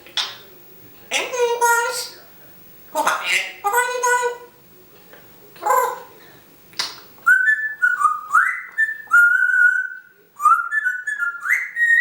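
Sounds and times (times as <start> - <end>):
parrot whistling: 7.2 - 12.0.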